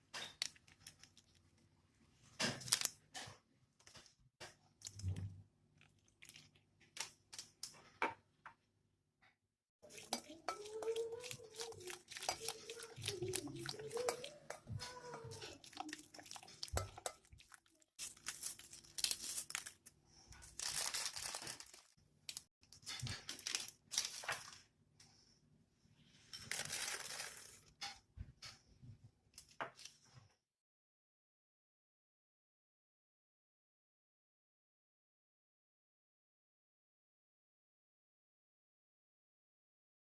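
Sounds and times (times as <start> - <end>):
rustling and crinkling: 11.0 - 24.7, 26.2 - 28.0.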